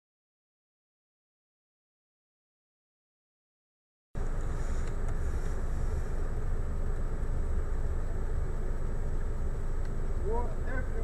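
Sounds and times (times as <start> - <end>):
car driving rumble: 4.2 - 11.0.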